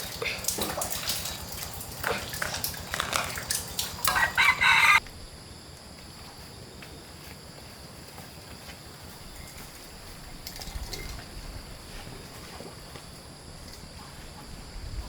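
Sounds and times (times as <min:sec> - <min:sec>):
loud animal call: 0:02.4 - 0:05.0.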